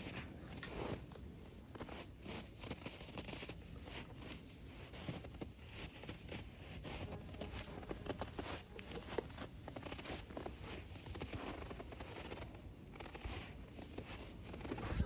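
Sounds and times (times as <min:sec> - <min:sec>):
boots crunching through snow: 0:00.0 - 0:15.0
wind rumble on microphone: 0:14.4 - 0:15.0.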